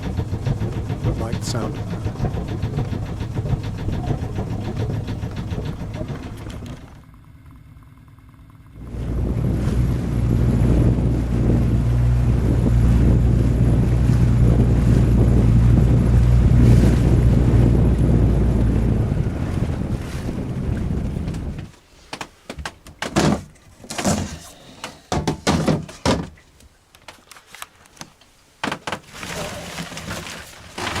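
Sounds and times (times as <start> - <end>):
engine running: 0.0 - 21.7.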